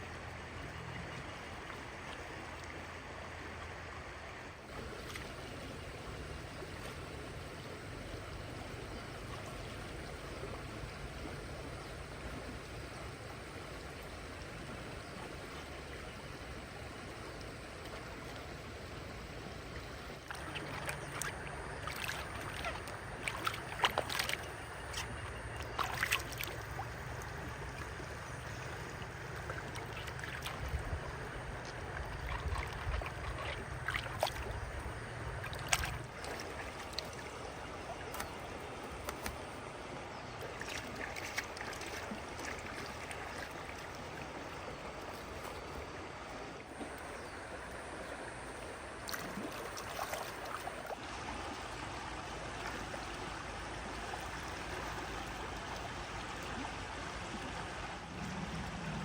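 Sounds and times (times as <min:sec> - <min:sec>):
water sloshing and trickling: 0:00.0 - 0:59.0
low hum: 0:57.8 - 0:59.0.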